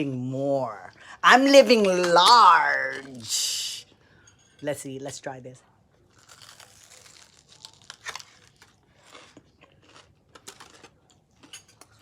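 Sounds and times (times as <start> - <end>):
crisp food crunches: 6.1 - 12.0
person chewing: 6.1 - 12.0.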